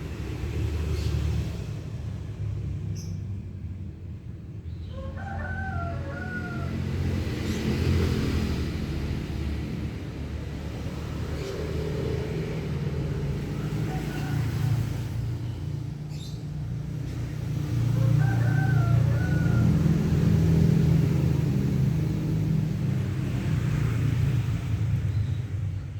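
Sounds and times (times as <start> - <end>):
rooster crowing: 4.9 - 7.2, 13.4 - 15.4, 17.8 - 21.3.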